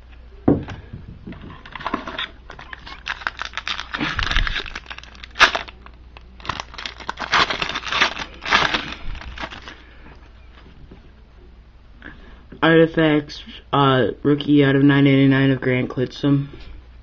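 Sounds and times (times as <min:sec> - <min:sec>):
cards being handled: 0:01.5 - 0:09.8
wrapper crinkling and tearing: 0:01.5 - 0:09.8.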